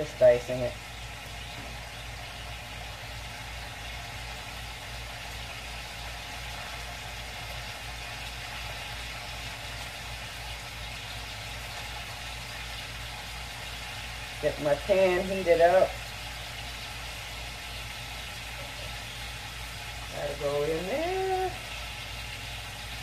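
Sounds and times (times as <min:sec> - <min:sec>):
sausage sizzling in a pot: 0:00.0 - 0:23.0.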